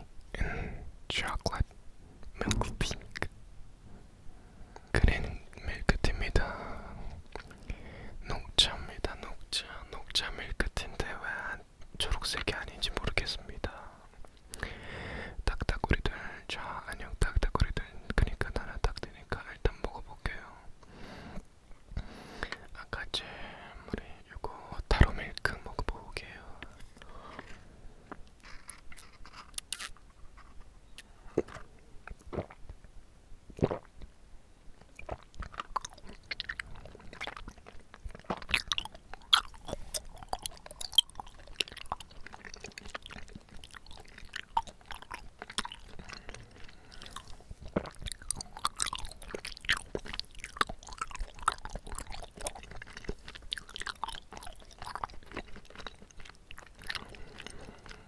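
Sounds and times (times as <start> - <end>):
mouth chewing clicks and smacks: 1.2 - 3.3, 4.8 - 14.7, 28.1 - 32.9, 33.5 - 34.1, 34.8 - 58.0.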